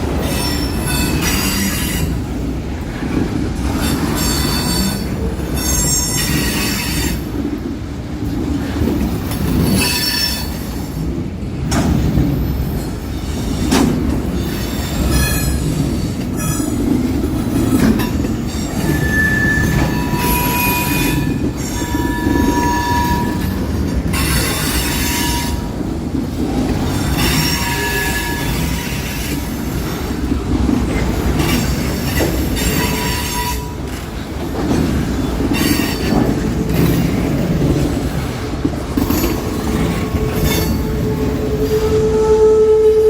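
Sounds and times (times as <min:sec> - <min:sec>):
train wheels squealing on rails: 0:00.0 - 0:02.4, 0:03.0 - 0:07.6, 0:08.6 - 0:11.1, 0:11.7 - 0:43.0
freight train rumble: 0:00.0 - 0:43.0.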